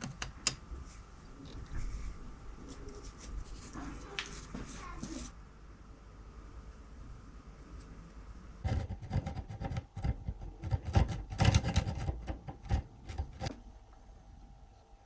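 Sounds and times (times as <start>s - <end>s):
clicks knocks and scrapes on metal: 8.7s - 13.6s.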